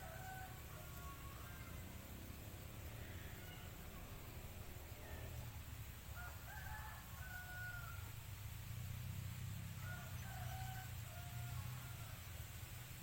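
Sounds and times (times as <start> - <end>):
distant rooster crowing: 0.0 - 8.4, 9.2 - 12.8.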